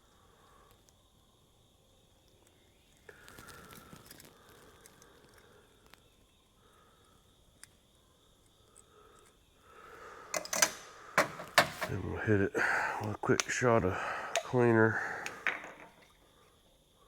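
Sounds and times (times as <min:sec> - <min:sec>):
faint small clicks: 0:00.6 - 0:01.0, 0:02.2 - 0:06.3, 0:07.5 - 0:09.4.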